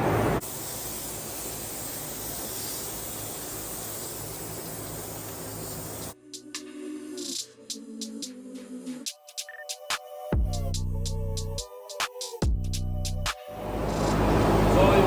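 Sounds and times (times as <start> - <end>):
music: 6.2 - 15.0.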